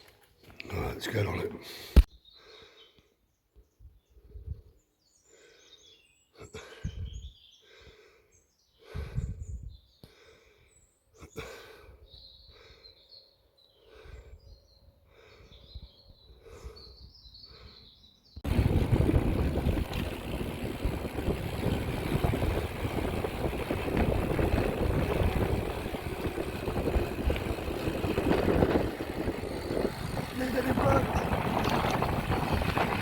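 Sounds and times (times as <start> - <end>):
small birds chirping: 0.4 - 33.0
low rumbles: 18.4 - 33.0.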